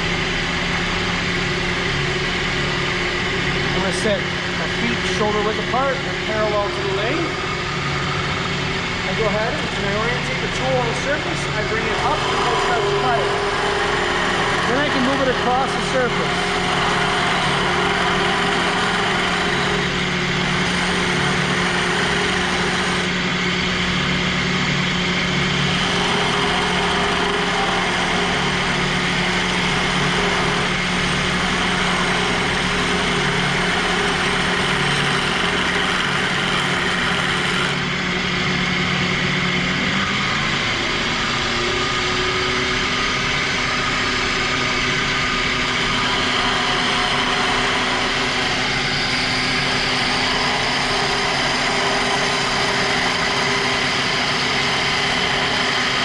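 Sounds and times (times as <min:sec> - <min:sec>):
wood lathe motor hum: 0:00.0 - 0:56.0
scraper cutting spinning wood: 0:09.5 - 0:23.2, 0:25.4 - 0:37.8, 0:45.6 - 0:56.0.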